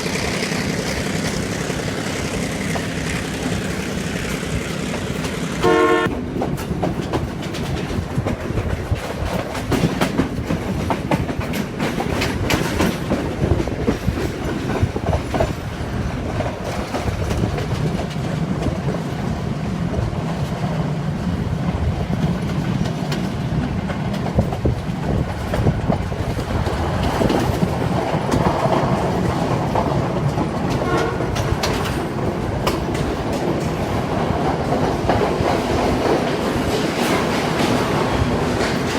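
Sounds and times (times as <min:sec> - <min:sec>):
diesel locomotive droning: 0:00.0 - 0:06.9, 0:23.5 - 0:38.9
wheels clacking over rail joints: 0:00.0 - 0:38.9
train horn blast: 0:05.6 - 0:06.1, 0:30.8 - 0:31.4.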